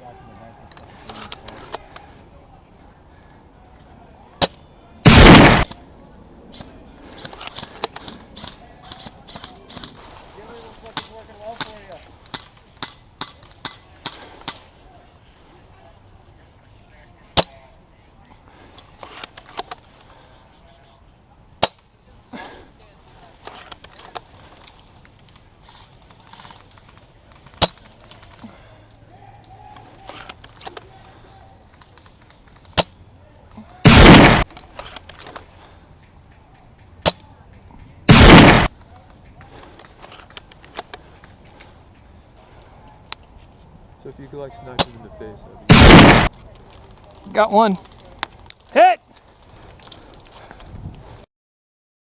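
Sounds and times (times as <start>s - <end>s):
airsoft gunfire burst: 5.1s - 5.7s, 33.8s - 34.5s, 38.1s - 38.7s, 45.7s - 46.3s
loud sharp crack: 5.1s - 5.8s, 33.8s - 34.6s, 38.1s - 38.7s, 45.7s - 46.3s.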